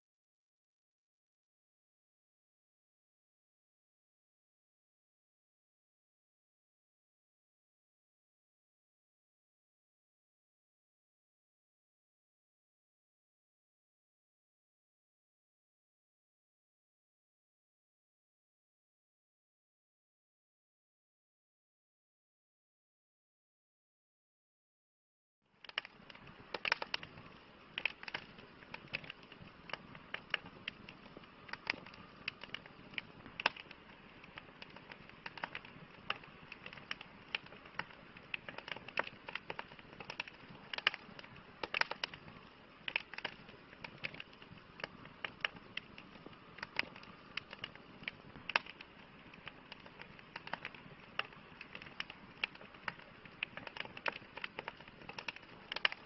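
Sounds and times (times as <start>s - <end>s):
campfire crackling: 25.4s - 56.0s
sharp pops of burning wood: 25.6s - 56.0s.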